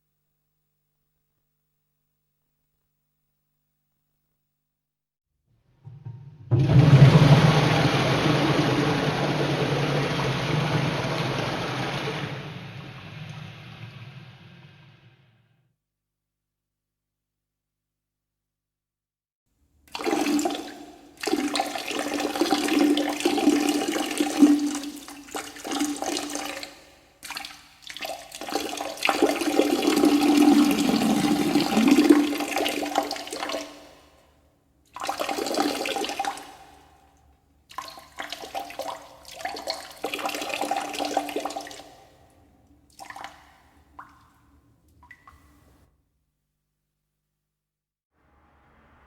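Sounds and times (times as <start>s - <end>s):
person gargling: 30.1s - 32.4s.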